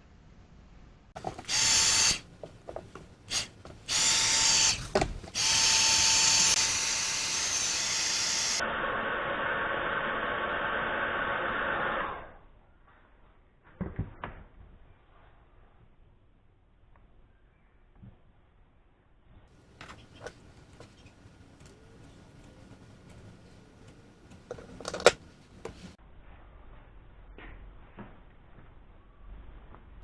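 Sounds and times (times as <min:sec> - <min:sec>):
heat gun blowing with faint whine: 0:03.3 - 0:12.4.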